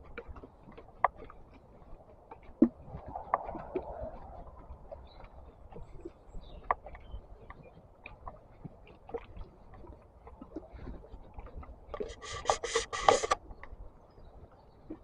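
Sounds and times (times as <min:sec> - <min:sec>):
footsteps on a path: 0:00.0 - 0:15.0
rubbing scraping near microphone: 0:12.0 - 0:13.4.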